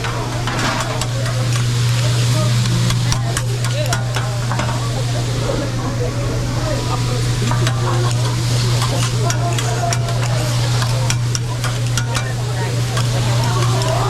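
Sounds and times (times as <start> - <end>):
metal spatulas scraping griddle: 0.0 - 5.6, 6.8 - 14.0
steady low hum: 0.0 - 14.0
vegetables sizzling on griddle: 6.5 - 14.0.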